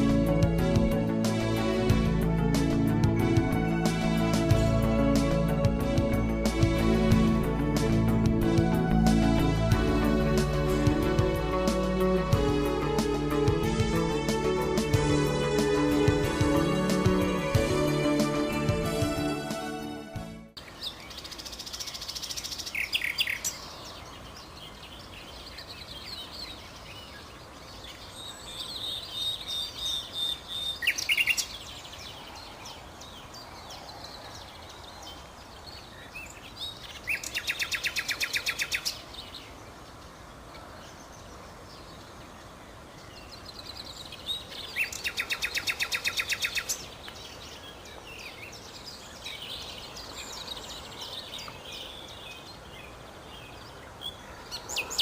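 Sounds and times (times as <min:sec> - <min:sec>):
steady background hiss: 0:00.0 - 0:55.0
nightingale singing: 0:20.6 - 0:55.0.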